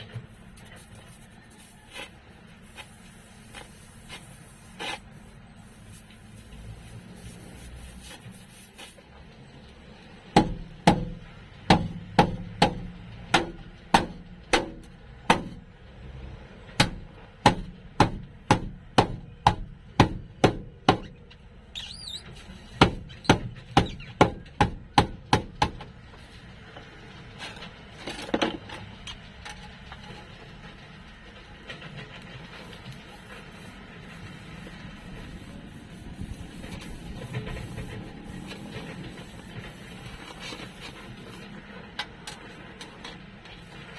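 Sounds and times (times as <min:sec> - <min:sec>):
hammer striking sheet metal: 0:10.4 - 0:15.8, 0:16.8 - 0:21.4, 0:22.7 - 0:25.9.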